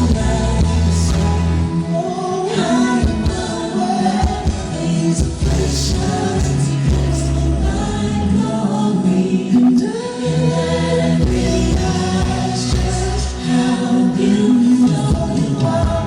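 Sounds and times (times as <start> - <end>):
steady bass: 0.0 - 2.0, 5.2 - 8.6, 9.6 - 9.8, 10.5 - 16.0
choir singing gospel music: 0.0 - 16.0.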